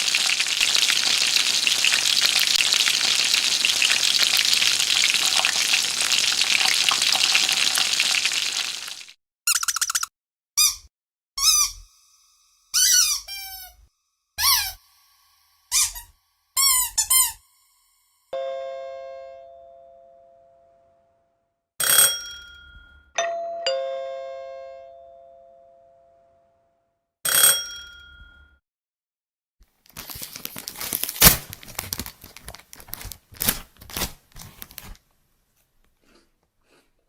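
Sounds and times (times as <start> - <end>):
doorbell chime: 18.4 - 20.8, 22.0 - 26.2, 27.5 - 28.6.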